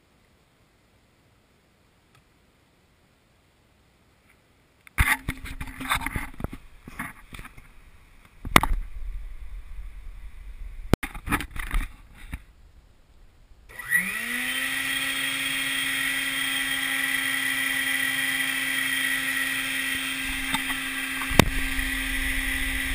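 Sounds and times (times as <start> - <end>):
wet dry vac motor whine: 13.7 - 22.9.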